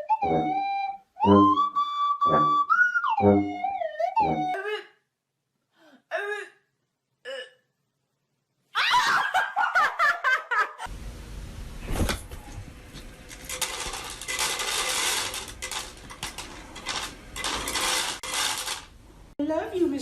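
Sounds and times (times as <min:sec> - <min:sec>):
person laughing: 0:08.8 - 0:10.9
clattering and rattling: 0:12.0 - 0:19.0.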